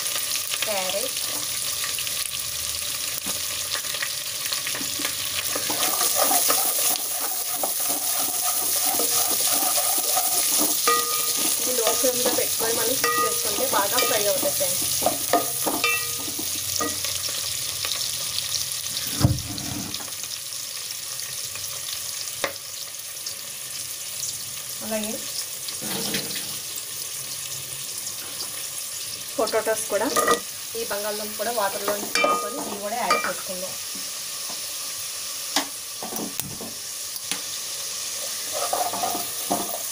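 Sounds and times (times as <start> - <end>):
vegetables sizzling in oil: 0.0 - 39.9
spatula scraping a pot: 5.4 - 16.5, 38.2 - 39.9.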